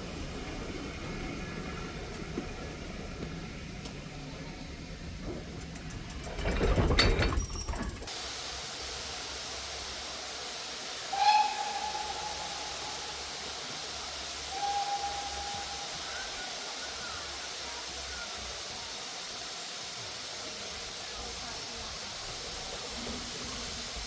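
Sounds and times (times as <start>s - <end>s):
steam locomotive whistle blasts: 10.9s - 17.0s.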